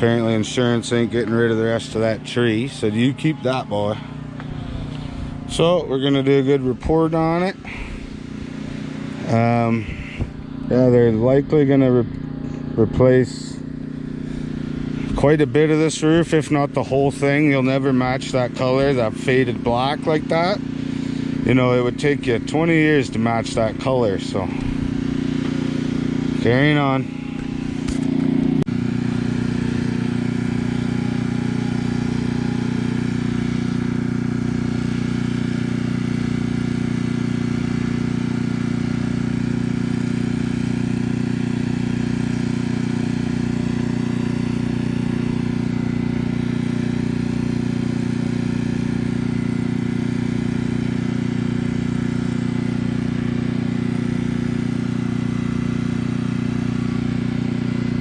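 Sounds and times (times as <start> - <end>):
engine droning steadily: 0.0 - 58.0.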